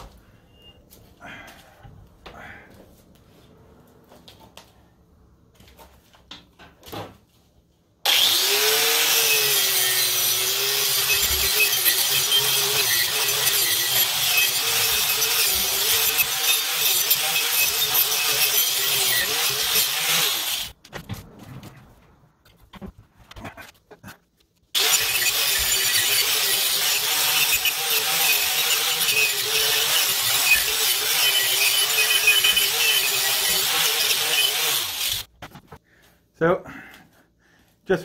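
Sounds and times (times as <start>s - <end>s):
wire wheel scouring steel: 8.1s - 20.8s, 24.8s - 35.3s.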